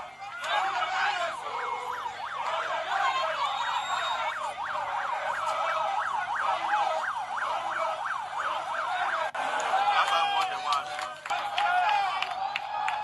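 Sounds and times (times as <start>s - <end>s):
vehicle siren yelping: 0.0s - 9.4s.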